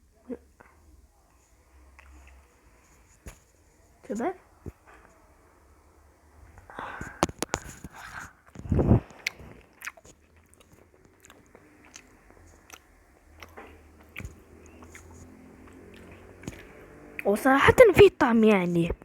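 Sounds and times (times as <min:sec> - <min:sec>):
person chewing crunchy food: 0:07.4 - 0:16.8.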